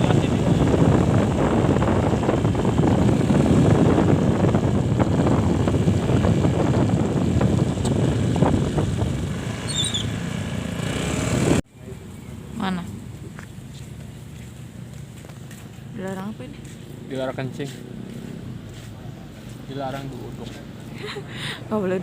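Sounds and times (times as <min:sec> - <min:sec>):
wind buffeting microphone: 0:00.0 - 0:11.6
motorbike engine rumble: 0:00.0 - 0:22.0.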